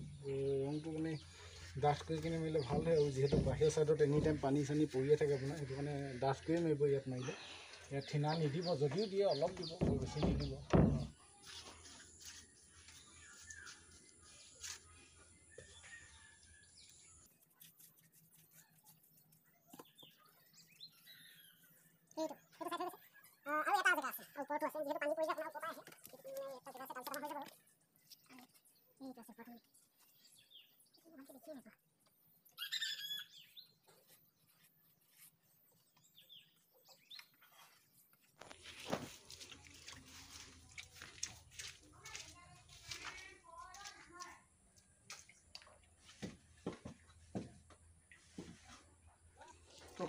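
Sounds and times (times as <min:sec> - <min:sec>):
wooden bench knock: 0:02.6 - 0:04.5, 0:09.5 - 0:11.2
faint bird chirps: 0:32.4 - 0:37.9.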